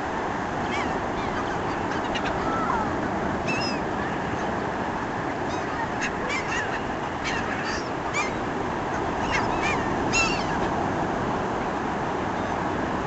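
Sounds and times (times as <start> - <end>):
seagulls calling: 0.6 - 4.6, 5.3 - 10.8.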